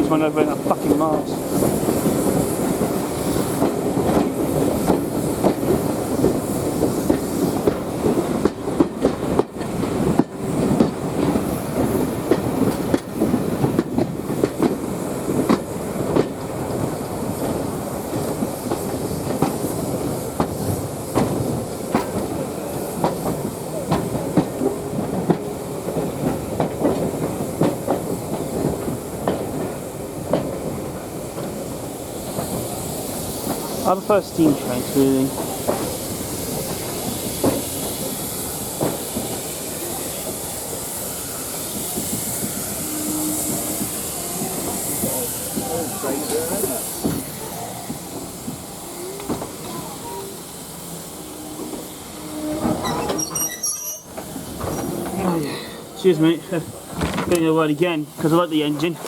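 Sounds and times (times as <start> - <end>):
train carriage rumbling on track: 0.0 - 59.0
wheels clicking over rail joints: 52.4 - 59.0.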